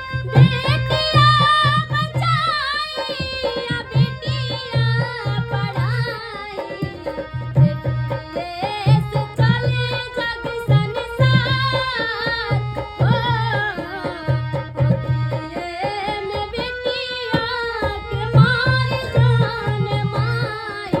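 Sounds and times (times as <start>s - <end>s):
girl singing: 0.3s - 7.2s, 15.4s - 21.0s.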